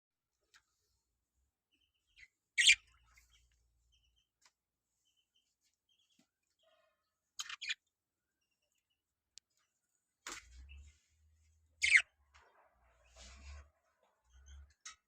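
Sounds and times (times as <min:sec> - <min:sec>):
faint budgerigar chirps: 0:01.7 - 0:04.2, 0:05.9 - 0:07.9, 0:11.8 - 0:12.2
budgerigar squawks: 0:02.6 - 0:02.8, 0:11.8 - 0:12.1.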